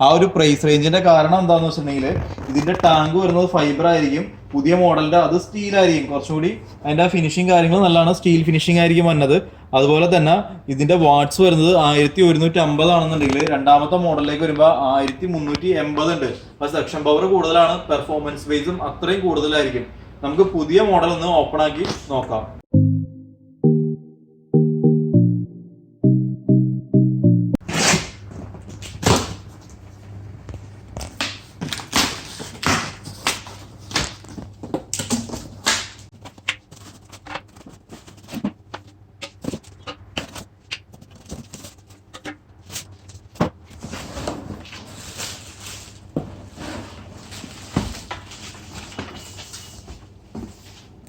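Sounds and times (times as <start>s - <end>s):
cardboard and packaging rustling: 30.9s - 51.0s.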